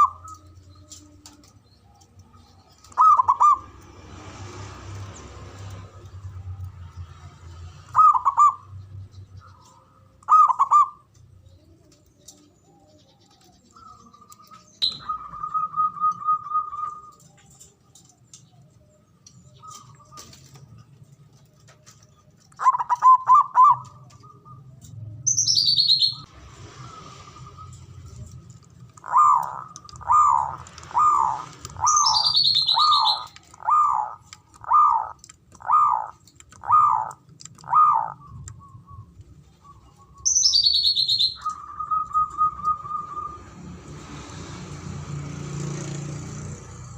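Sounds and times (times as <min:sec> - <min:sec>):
dove cooing: 0:00.0 - 0:03.8, 0:07.9 - 0:08.8, 0:09.4 - 0:25.2, 0:27.2 - 0:40.3, 0:40.9 - 0:43.5.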